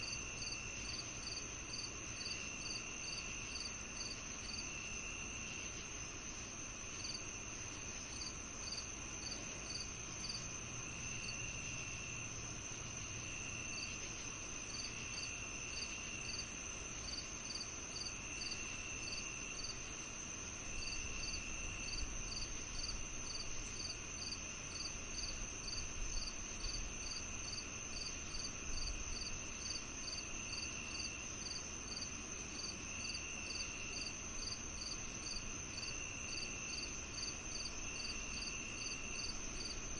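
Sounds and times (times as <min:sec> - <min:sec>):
lower insect trill: 0:00.0 - 0:39.9
quick cricket chirps: 0:00.0 - 0:39.9
high cricket trill: 0:20.7 - 0:39.9.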